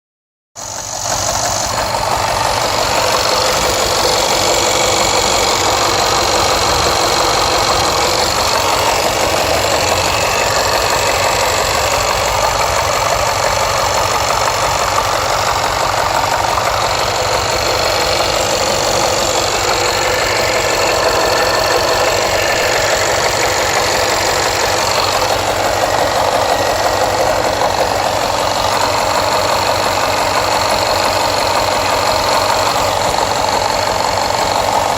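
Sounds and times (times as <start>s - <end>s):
car engine misfiring: 0.6s - 34.9s.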